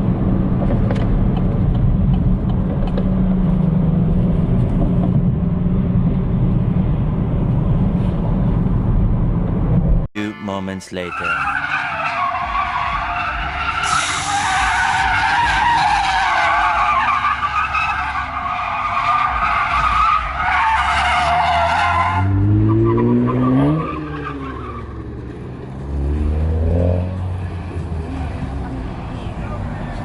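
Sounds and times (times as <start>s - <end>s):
car tyres screeching: 11.1s - 30.0s.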